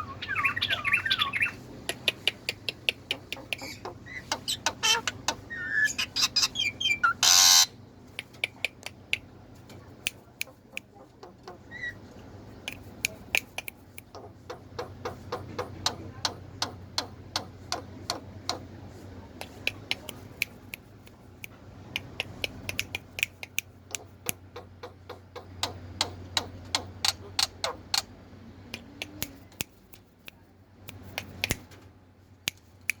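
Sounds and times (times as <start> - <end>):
low steady hum: 0.0 - 33.0
bird making sharp dry clicks: 30.9 - 31.8.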